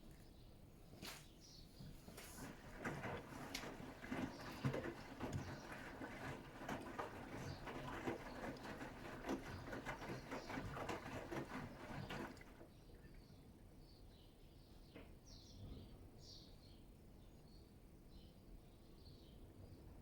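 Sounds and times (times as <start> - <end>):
faint water trickling: 0.0 - 13.7
water sloshing: 1.8 - 12.7.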